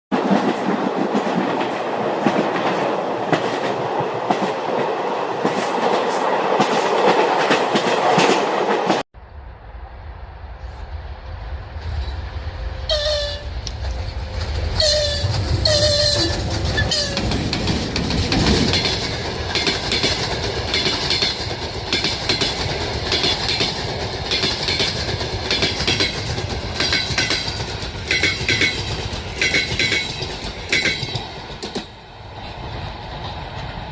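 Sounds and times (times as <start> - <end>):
train rumbling past: 0.1 - 33.9
wheel clatter over rail joints: 13.7 - 32.0.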